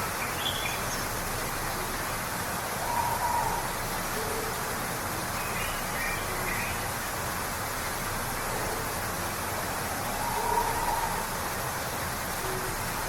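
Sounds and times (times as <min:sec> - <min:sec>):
waterfall roaring: 0:00.0 - 0:13.0
faint bird calls: 0:02.8 - 0:04.6.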